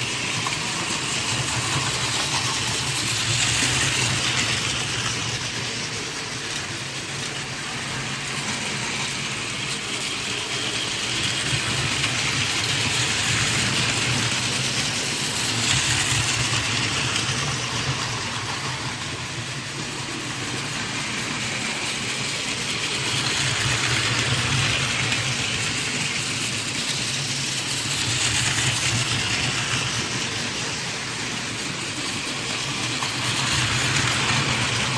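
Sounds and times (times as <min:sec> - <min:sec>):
toy train running on plastic track: 0:00.0 - 0:34.9.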